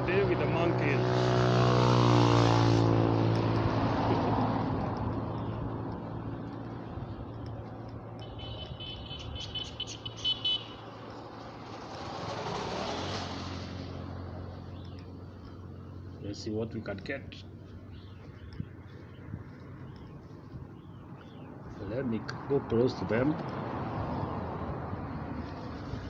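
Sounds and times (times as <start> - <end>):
vehicle driving past: 0.0 - 7.8, 8.4 - 19.8
vehicle approaching: 0.0 - 26.0.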